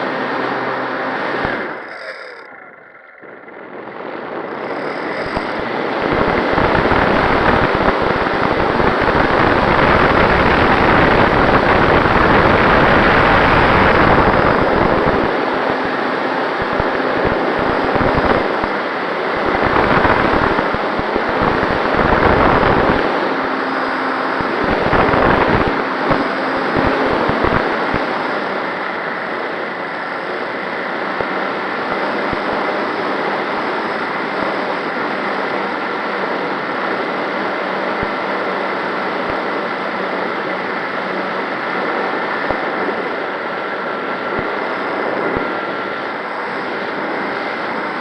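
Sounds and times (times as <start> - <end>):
model plane motor and propeller: 0.0 - 48.0
wind rushing past microphone: 16.6 - 29.2.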